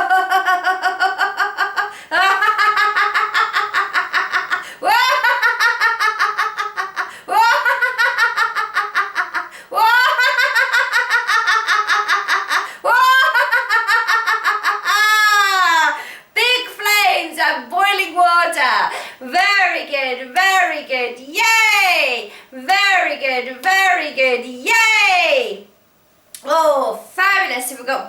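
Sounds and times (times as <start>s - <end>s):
woman laughing heartily: 0.0s - 15.8s.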